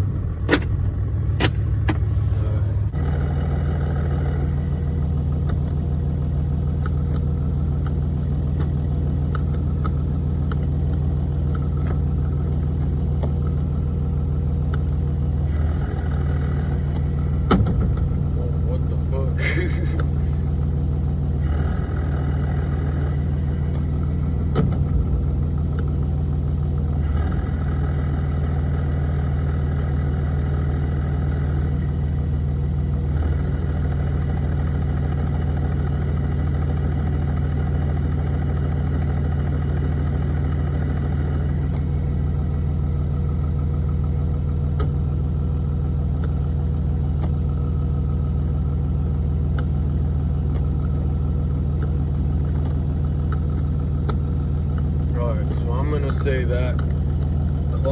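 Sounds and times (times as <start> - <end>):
diesel engine idling: 0.0 - 57.9
short engine knock: 16.6 - 18.4.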